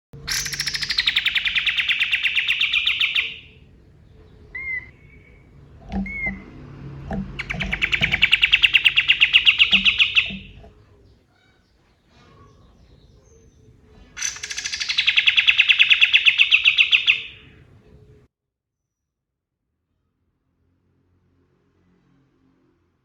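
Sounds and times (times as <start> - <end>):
bird rapid rattling trills: 0.2 - 3.7, 4.4 - 10.8, 14.2 - 17.6.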